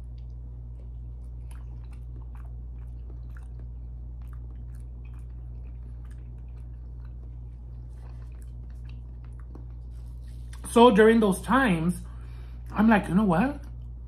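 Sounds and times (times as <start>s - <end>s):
wet chewing mouth clicks: 0.0s - 10.7s
low hum: 0.0s - 14.0s.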